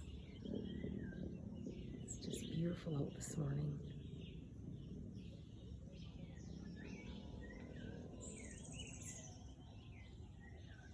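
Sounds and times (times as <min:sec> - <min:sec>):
birds chirping and calling: 0:00.0 - 0:10.9
outdoor background noise: 0:00.0 - 0:10.9.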